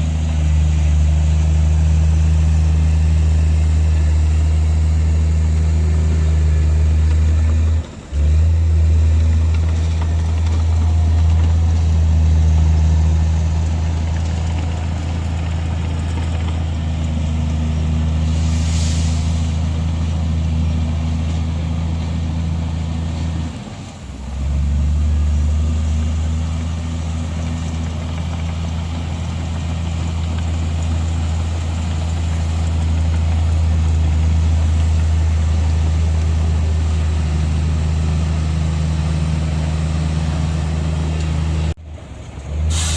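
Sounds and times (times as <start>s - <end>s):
heavy diesel engine humming: 0.0s - 42.9s
short hiss: 18.2s - 19.6s, 42.7s - 42.9s.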